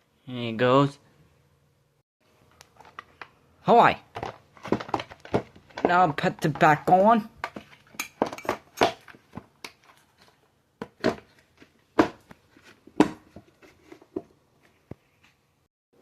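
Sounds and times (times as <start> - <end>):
plastic parts clicking and knocking: 4.1 - 10.0.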